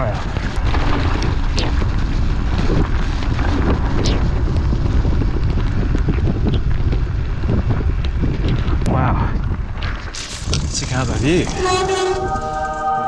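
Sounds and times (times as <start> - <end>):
mountain bike rumble on rough trail: 0.0 - 8.8, 9.4 - 12.8
wind buffeting microphone: 0.0 - 12.7
sharp clicks and rattles: 10.2 - 12.6.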